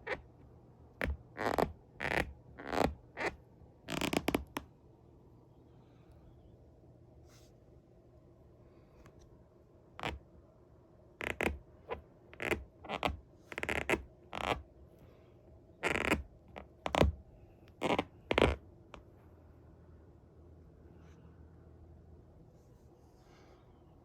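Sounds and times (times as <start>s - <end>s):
leather shoes scraping and creaking: 17.8s - 18.6s.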